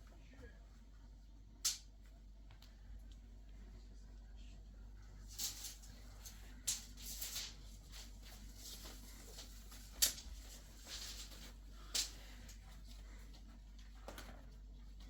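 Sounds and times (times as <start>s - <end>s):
faint steady hum: 0.0s - 15.0s
light clicks and rustles: 5.2s - 15.0s.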